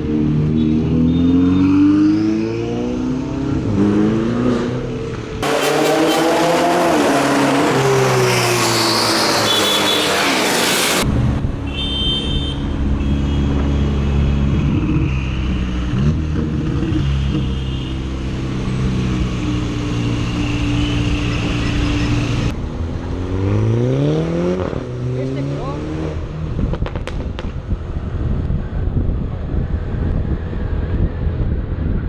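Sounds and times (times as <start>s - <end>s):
car engine revving: 0.0s - 11.1s
loud rushing noise: 5.4s - 11.4s.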